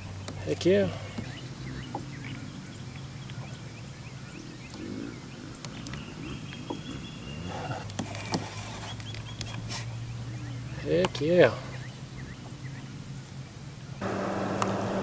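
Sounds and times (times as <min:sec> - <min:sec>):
birds calling: 0:00.0 - 0:15.0
steady low hum: 0:11.6 - 0:15.0.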